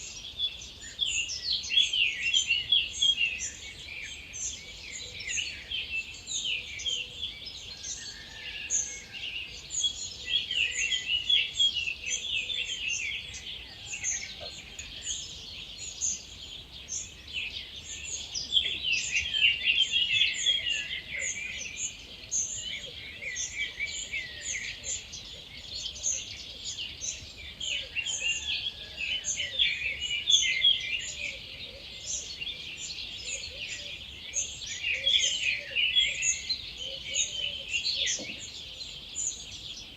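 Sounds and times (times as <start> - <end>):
birds singing: 0.0 - 39.9
faint low repeated bird call: 9.8 - 39.9.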